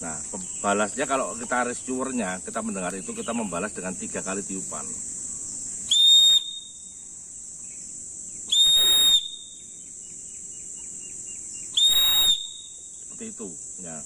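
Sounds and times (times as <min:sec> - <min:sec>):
insects buzzing: 0:00.0 - 0:14.0
shrill whistle blasts: 0:05.9 - 0:07.0, 0:08.5 - 0:09.7, 0:11.6 - 0:12.9.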